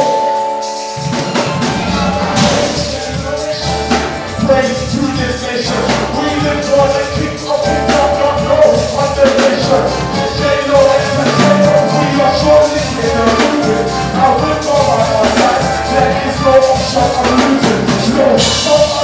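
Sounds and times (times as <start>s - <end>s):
upbeat music with drum beat: 0.0s - 19.0s
person singing: 5.8s - 19.0s.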